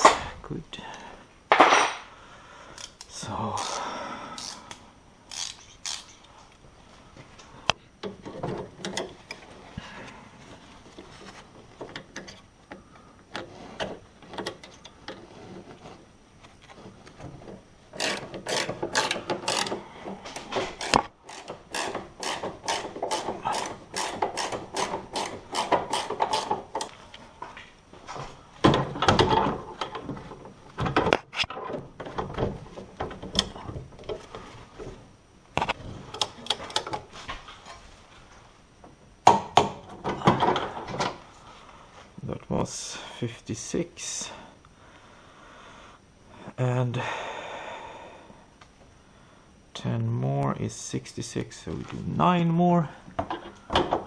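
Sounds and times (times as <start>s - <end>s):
tools knocking and clattering: 1.5s - 2.1s, 8.0s - 9.5s, 17.2s - 27.0s, 28.6s - 35.0s, 39.3s - 41.2s, 53.2s - 54.0s
ratchet wrench clicking: 2.8s - 3.8s, 4.4s - 6.2s, 18.0s - 19.8s, 20.8s - 26.9s.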